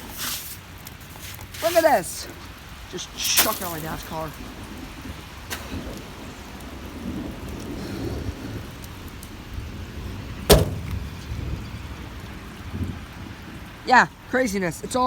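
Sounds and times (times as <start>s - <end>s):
rain and hail falling: 0.0s - 15.0s
sharp knock: 10.5s - 11.0s.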